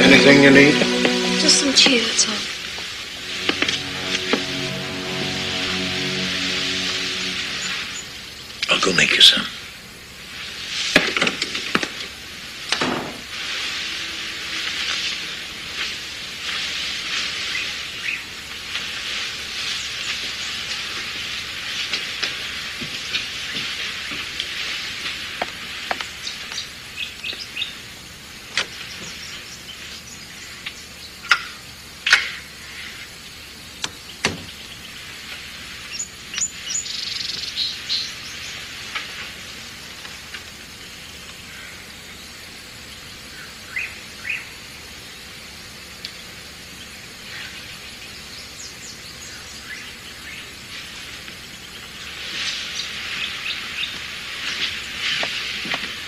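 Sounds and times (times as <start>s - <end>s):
steady high hiss: 0.0s - 27.0s.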